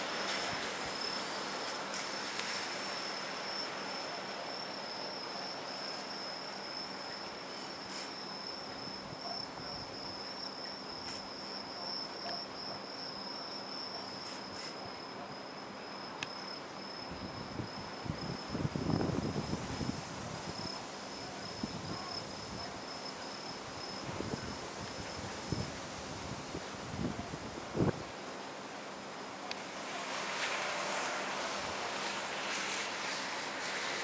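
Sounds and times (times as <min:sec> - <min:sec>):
insects singing high-pitched note: 0:00.0 - 0:26.4
steady background hiss: 0:00.0 - 0:34.0.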